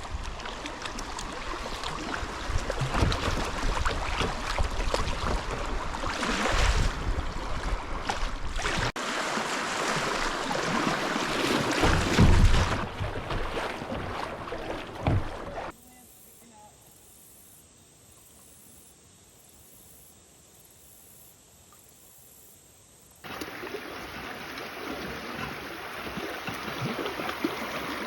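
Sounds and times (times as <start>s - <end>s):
wind rumble on microphone: 0.0s - 8.9s
water rushing and splashing: 0.0s - 15.8s, 23.2s - 28.0s.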